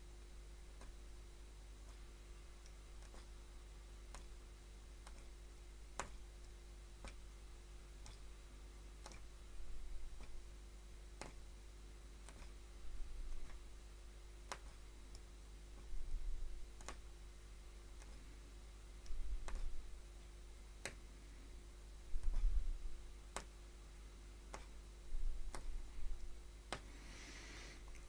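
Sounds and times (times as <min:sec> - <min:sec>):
electrical hum: 0:00.0 - 0:28.0
punch needle clicking through fabric: 0:00.8 - 0:01.0, 0:01.8 - 0:03.4, 0:04.1 - 0:04.4, 0:05.0 - 0:07.2, 0:08.0 - 0:08.3, 0:09.0 - 0:10.4, 0:11.2 - 0:11.5, 0:12.2 - 0:13.7, 0:14.4 - 0:16.0, 0:16.8 - 0:17.1, 0:18.0 - 0:18.3, 0:19.0 - 0:19.8, 0:20.8 - 0:21.0, 0:23.3 - 0:23.6, 0:24.5 - 0:26.9.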